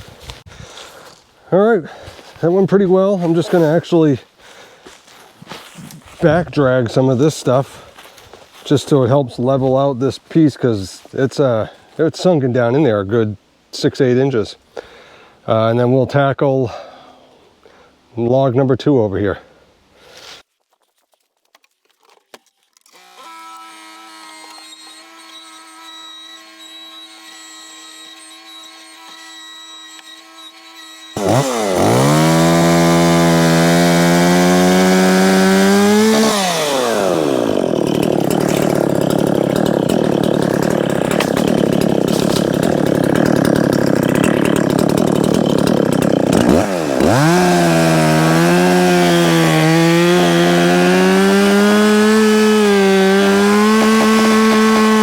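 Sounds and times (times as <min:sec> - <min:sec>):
chainsaw cutting log: 0:22.9 - 0:55.0
chainsaw revving: 0:31.0 - 0:55.0.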